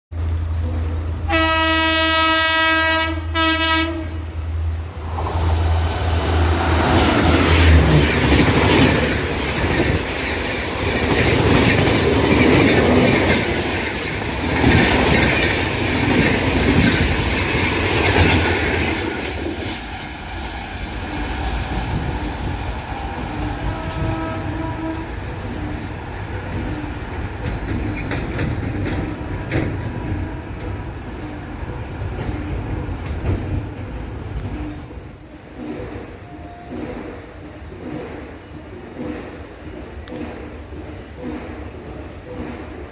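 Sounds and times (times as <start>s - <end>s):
train horn: 0.8s - 4.4s, 23.3s - 25.5s
train wheels clattering over rails: 5.0s - 42.9s.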